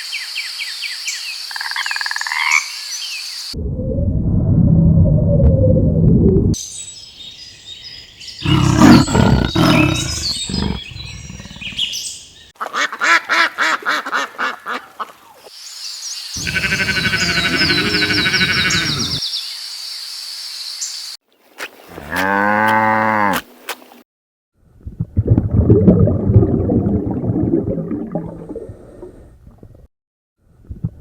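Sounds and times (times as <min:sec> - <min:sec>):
birds chirping: 0:06.9 - 0:12.5, 0:16.4 - 0:19.2
animal calls: 0:08.4 - 0:12.0, 0:16.4 - 0:19.2.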